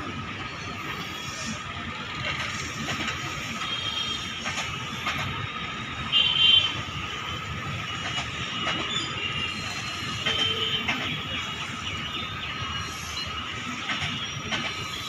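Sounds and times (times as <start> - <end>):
train wheels rumbling on rail: 0.0 - 15.0
high wheel squeal: 6.7 - 15.0.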